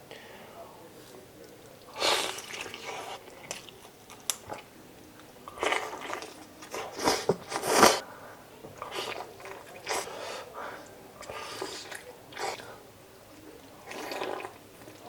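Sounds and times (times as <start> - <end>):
biting and chewing food: 1.4 - 8.0, 13.4 - 15.0.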